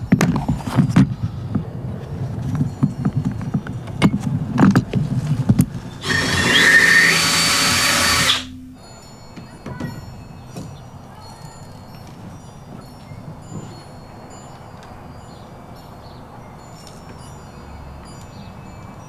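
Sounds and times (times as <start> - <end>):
power tool whining: 2.4 - 8.6.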